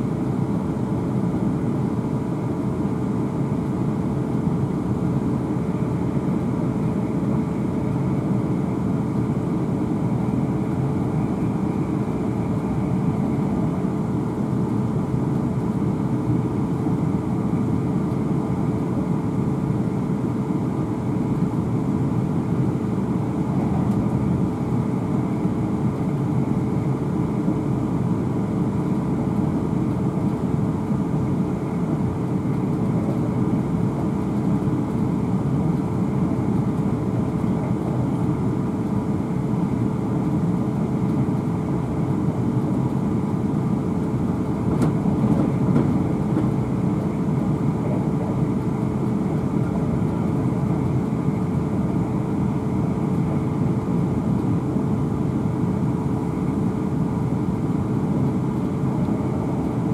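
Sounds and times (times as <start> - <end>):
constant hum: 0.0 - 59.9
train wheels rumbling on rail: 43.0 - 52.6.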